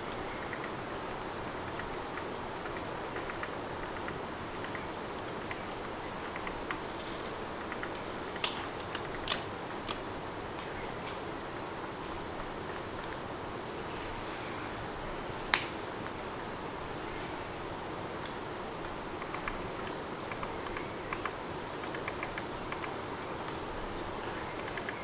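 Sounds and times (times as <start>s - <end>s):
sharp clicks: 8.4s - 11.2s.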